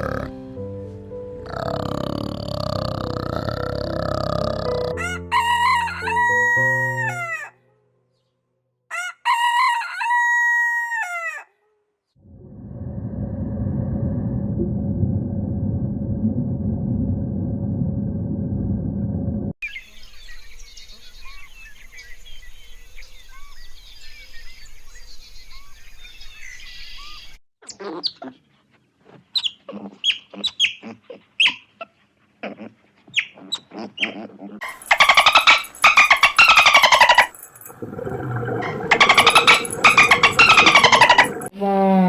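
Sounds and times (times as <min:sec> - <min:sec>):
small birds chirping: 0:33.1 - 0:41.5
loud buzzy animal calls: 0:34.6 - 0:41.6.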